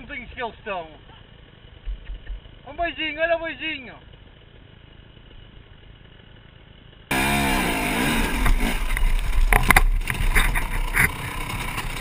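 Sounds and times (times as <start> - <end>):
dirt bike engine revving: 7.1 - 12.0.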